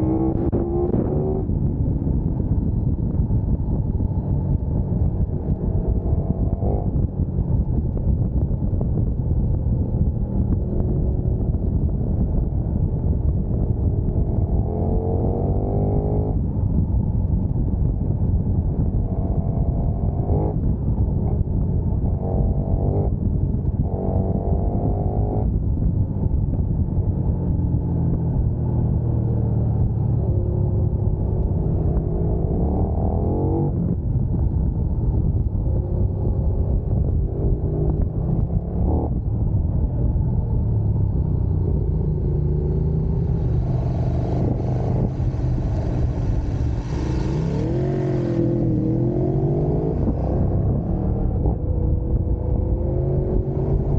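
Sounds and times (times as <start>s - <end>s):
motorcycle engine accelerating: 0.0s - 53.9s
wind and road noise: 0.0s - 53.9s.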